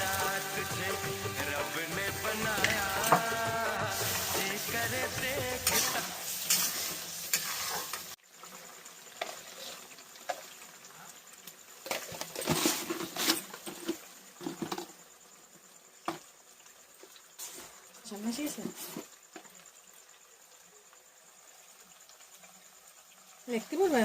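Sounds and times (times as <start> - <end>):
food frying in a pan: 0.0 - 24.0
spoon scraping and knocking pan: 1.3 - 8.1.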